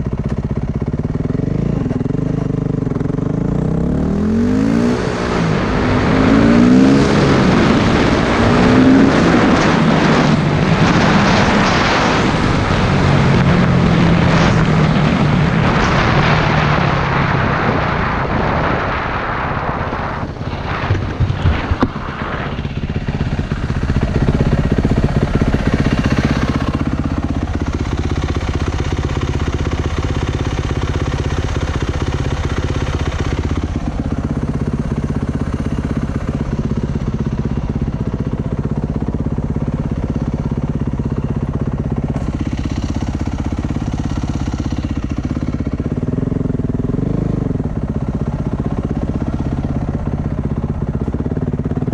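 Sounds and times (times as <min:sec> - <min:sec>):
motorcycle engine running: 0:00.0 - 0:51.9
broad rushing noise: 0:05.0 - 0:40.3.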